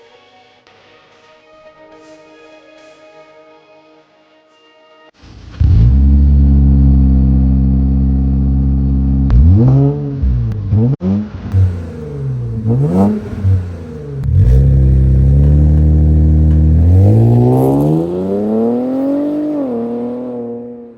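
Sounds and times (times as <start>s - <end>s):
car engine idling and revving: 5.6s - 20.9s.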